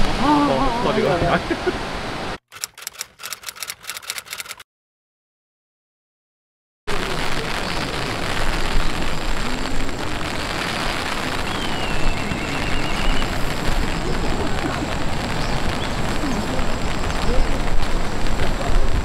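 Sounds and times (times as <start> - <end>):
steady rain falling: 0.0 - 2.4, 6.9 - 19.0.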